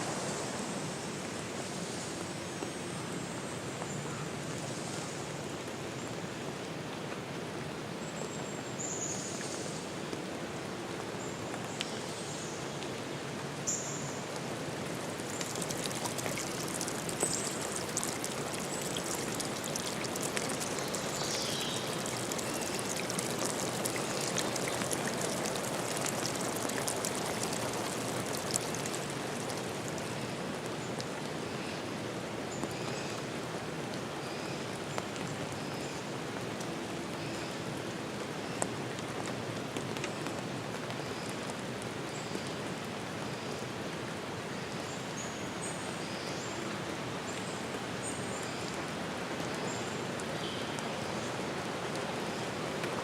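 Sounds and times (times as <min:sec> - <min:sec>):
rain falling: 0:00.0 - 0:53.0
rushing water: 0:00.0 - 0:53.0
small drips and ticks: 0:11.0 - 0:44.1, 0:44.8 - 0:53.0
single sharp raindrops: 0:14.2 - 0:31.2.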